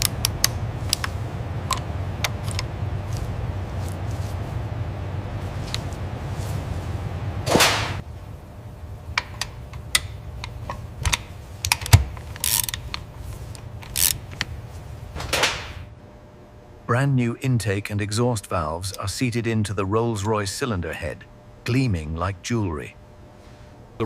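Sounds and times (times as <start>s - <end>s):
low steady hum: 0.0s - 24.0s
ratchet ticking: 9.2s - 13.0s, 13.8s - 14.3s.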